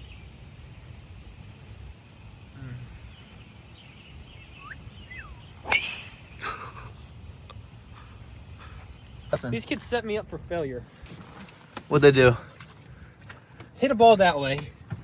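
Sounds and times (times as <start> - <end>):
steady outdoor hiss: 0.0 - 15.0
golf club striking ball: 5.1 - 6.4.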